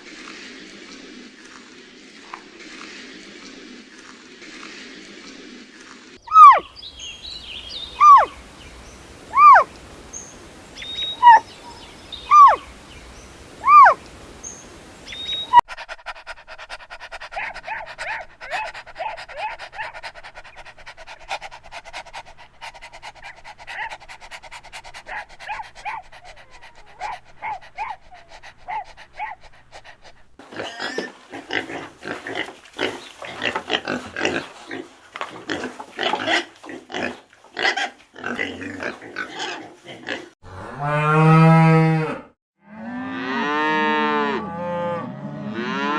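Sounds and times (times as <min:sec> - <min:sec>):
loud rising and falling animal calls: 0:06.2 - 0:15.6.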